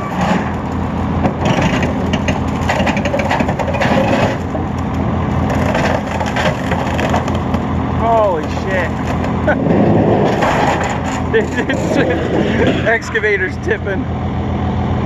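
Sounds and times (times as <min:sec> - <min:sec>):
metal crunching and scraping: 0:00.0 - 0:14.1
excavator diesel engine running: 0:00.0 - 0:15.0.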